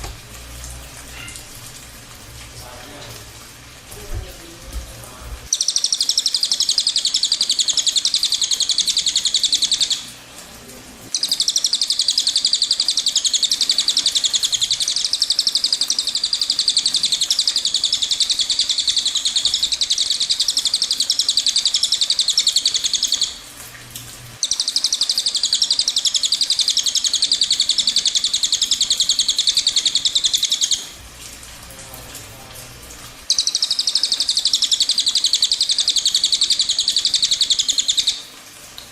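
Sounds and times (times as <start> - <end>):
bird singing rolling trill: 5.5 - 10.0, 11.2 - 23.4, 24.4 - 30.9, 33.3 - 38.2.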